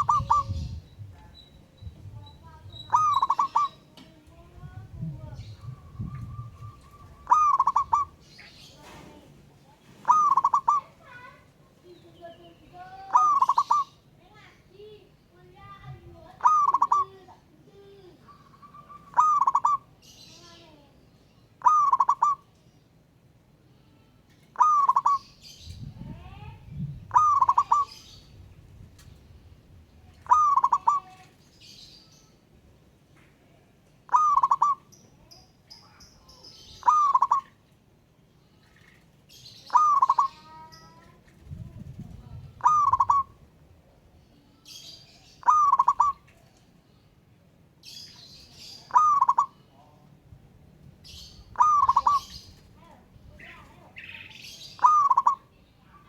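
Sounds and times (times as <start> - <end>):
dove cooing: 0.0 - 0.8, 2.5 - 3.8, 4.7 - 8.2, 9.9 - 11.0, 13.0 - 13.9, 16.4 - 17.2, 18.3 - 19.9, 21.6 - 22.4, 24.6 - 25.2, 27.0 - 28.1, 30.2 - 31.2, 34.1 - 34.9, 36.8 - 37.6, 39.7 - 40.6, 41.5 - 43.5, 45.4 - 46.4, 48.8 - 49.6, 51.4 - 52.6, 54.8 - 55.5
small birds chirping: 0.0 - 23.1, 23.9 - 56.0.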